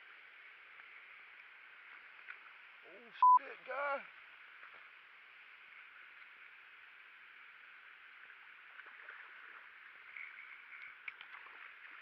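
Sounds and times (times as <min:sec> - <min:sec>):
outdoor ambience hiss: 0:00.0 - 0:12.0
soft ticks: 0:10.1 - 0:11.4.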